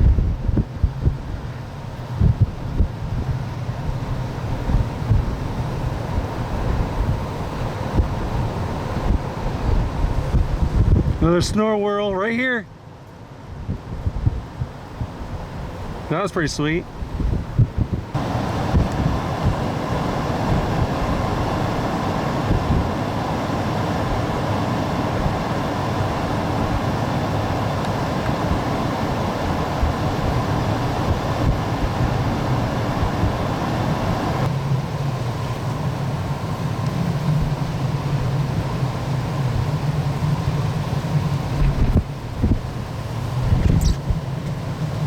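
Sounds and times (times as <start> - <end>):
gusty wind buffeting microphone: 0.0 - 11.8, 13.3 - 45.0.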